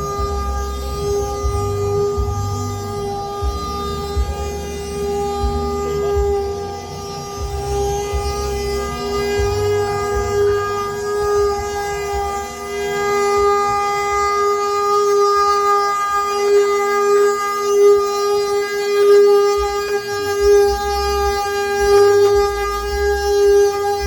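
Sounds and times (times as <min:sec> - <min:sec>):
low rumble: 0:00.0 - 0:18.6
wooden cart axle droning: 0:00.0 - 0:24.0.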